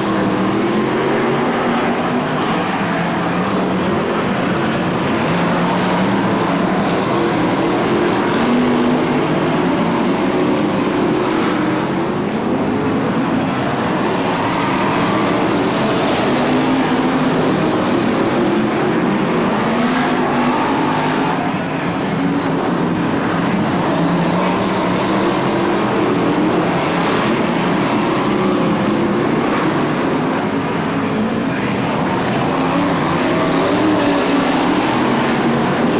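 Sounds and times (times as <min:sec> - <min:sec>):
race car engines passing: 0:00.0 - 0:35.9.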